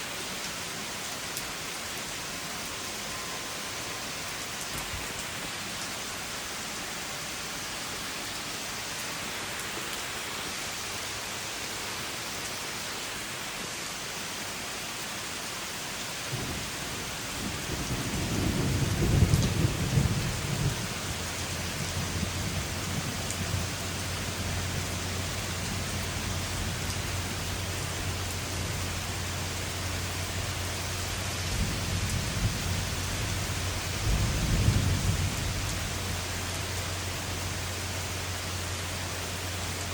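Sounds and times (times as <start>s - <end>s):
steady rain hissing: 0.0s - 39.9s
thunder rumbling: 16.3s - 36.2s.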